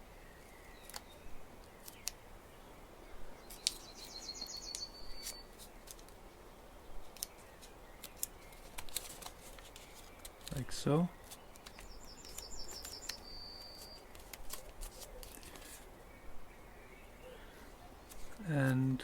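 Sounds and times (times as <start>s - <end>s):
paper being creased and folded: 3.5s - 3.9s, 5.1s - 6.2s, 7.0s - 15.9s, 18.1s - 18.9s.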